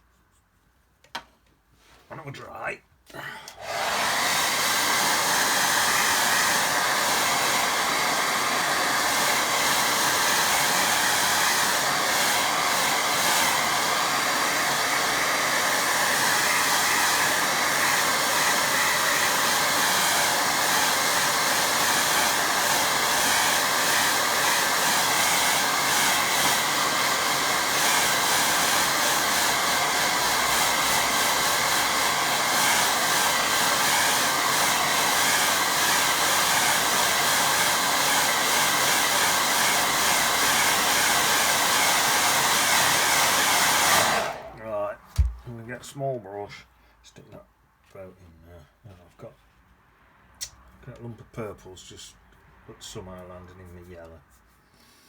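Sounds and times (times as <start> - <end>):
hair dryer blowing: 3.5 - 45.4.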